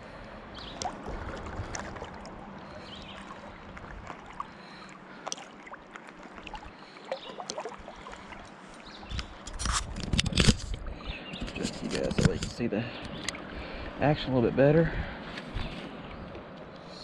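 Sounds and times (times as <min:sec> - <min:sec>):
rushing river water: 0:00.0 - 0:09.8
water splashing around wading legs: 0:00.6 - 0:12.2.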